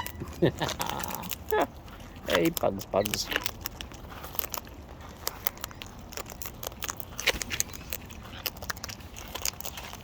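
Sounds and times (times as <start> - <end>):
beak cracking seeds: 0.0 - 10.0.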